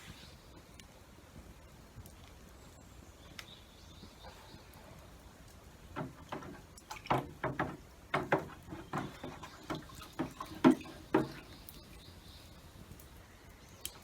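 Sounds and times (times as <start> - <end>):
sharp knocks and clacks: 6.0 - 11.5.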